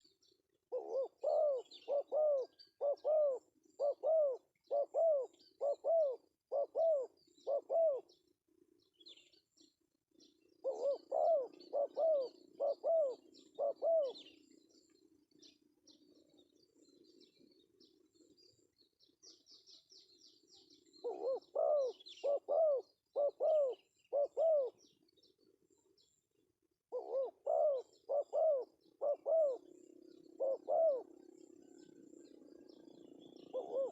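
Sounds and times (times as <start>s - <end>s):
dove cooing: 0.7s - 8.2s, 10.6s - 14.4s, 21.0s - 24.8s, 26.9s - 32.3s, 33.4s - 33.9s.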